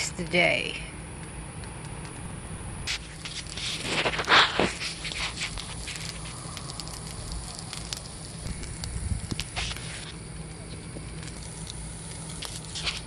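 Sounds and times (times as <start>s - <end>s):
food sizzling on a griddle: 2.9s - 13.0s.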